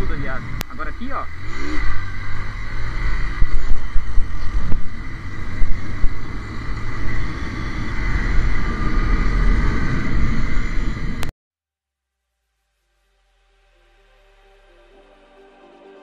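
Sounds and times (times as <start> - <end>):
motorcycle engine running: 0.0 - 9.6
wind rumble on microphone: 1.3 - 11.3.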